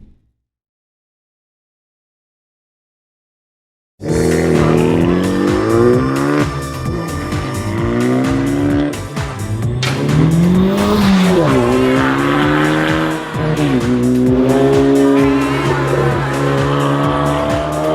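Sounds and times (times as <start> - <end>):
background music with beat: 4.2 - 17.9
car exhaust accelerating: 4.2 - 17.9.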